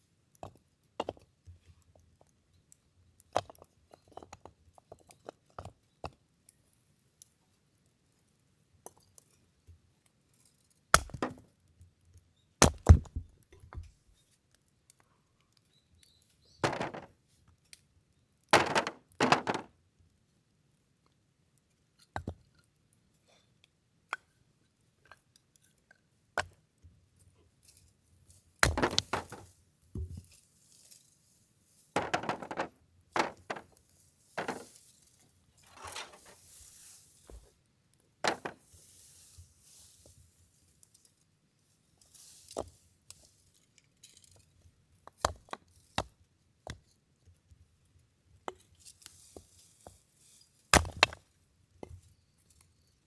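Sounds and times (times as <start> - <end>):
blade striking wood: 11.0 - 11.4, 16.6 - 17.1, 18.6 - 19.7, 28.6 - 29.4, 32.0 - 33.6, 34.4 - 34.7, 38.2 - 38.6, 50.8 - 51.2
wood cracking apart: 28.6 - 29.4.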